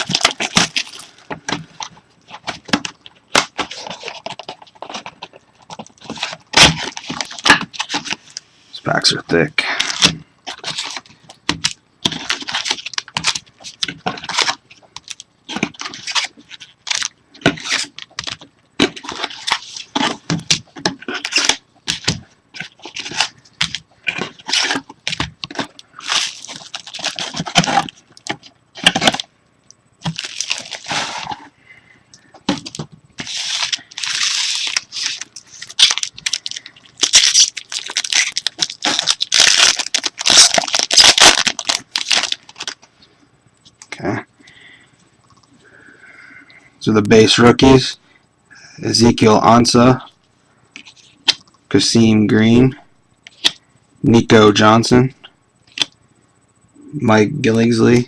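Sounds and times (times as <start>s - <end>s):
card wrappers ripping and crinkling: 0.0s - 8.4s, 9.0s - 29.3s, 30.0s - 31.5s, 32.5s - 42.9s.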